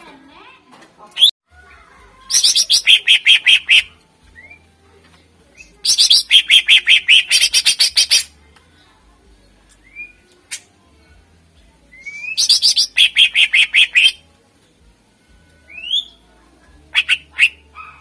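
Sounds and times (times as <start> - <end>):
bird shrill repeated notes: 2.3 - 4.7, 5.9 - 8.3, 12.0 - 14.2, 16.9 - 17.7.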